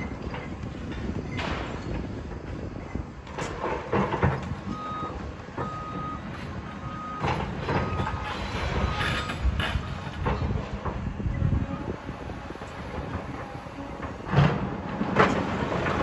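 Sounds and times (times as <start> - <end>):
sharp clanks and knocks: 0.0 - 6.6, 7.2 - 11.0
reversing alarm beeping: 4.6 - 10.1.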